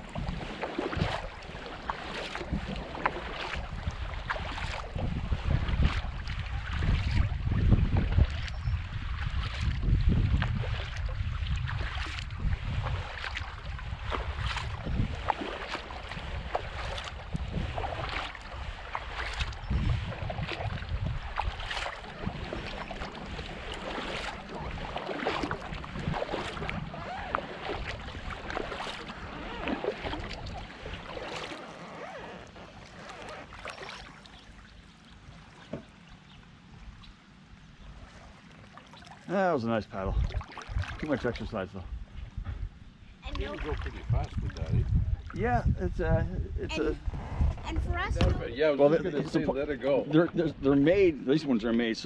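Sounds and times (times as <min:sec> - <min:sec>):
wind rumbling on microphone: 0:00.0 - 0:31.6, 0:39.8 - 0:52.0
kayak paddle splashing water: 0:00.0 - 0:37.1, 0:37.8 - 0:39.4, 0:40.1 - 0:41.6, 0:43.2 - 0:45.4.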